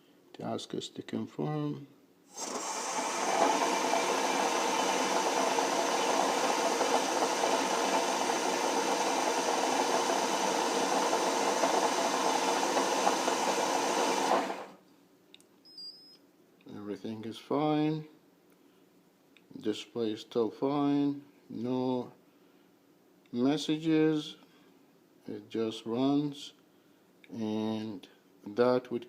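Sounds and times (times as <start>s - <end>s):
motor spinning up and winding down: 2.3s - 14.8s.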